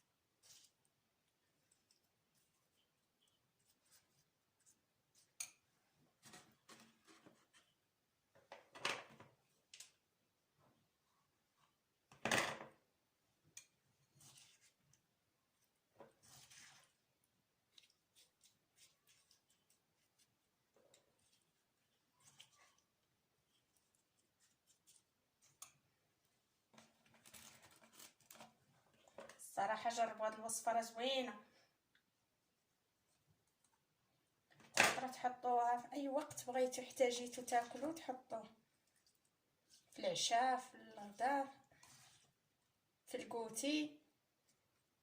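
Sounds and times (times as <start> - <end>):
brushing scrapes: 14.1 - 14.8, 16.1 - 17.0, 17.7 - 20.4, 41.8 - 42.4.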